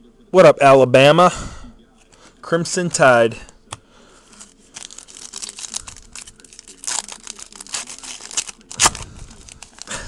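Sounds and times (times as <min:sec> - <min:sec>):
wrapper crinkling and tearing: 0:04.3 - 0:10.0.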